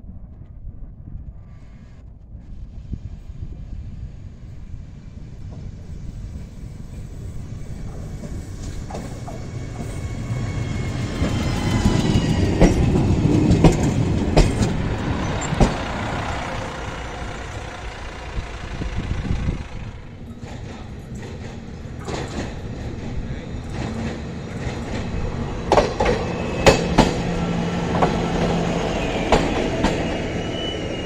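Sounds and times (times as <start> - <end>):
diesel railcar running past: 2.4 - 31.0
wheels clacking over rail joints: 7.6 - 30.5.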